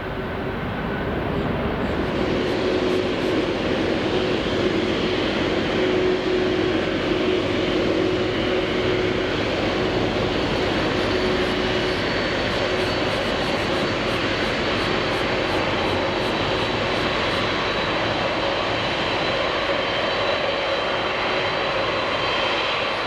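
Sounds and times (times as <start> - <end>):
faint high whine: 0.0 - 22.9
jet engines running: 0.0 - 23.0.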